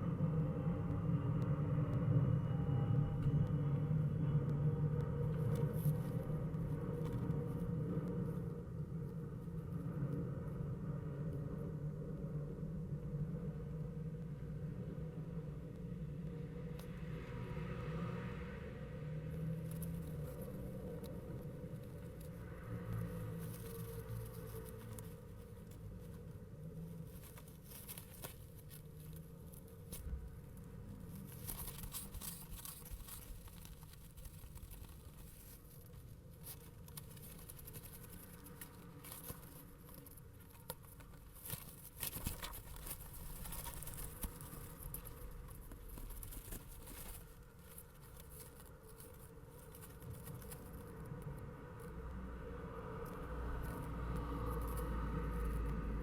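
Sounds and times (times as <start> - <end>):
low rumble: 0.0 - 27.7
scratching and tapping in nest box: 19.2 - 56.0.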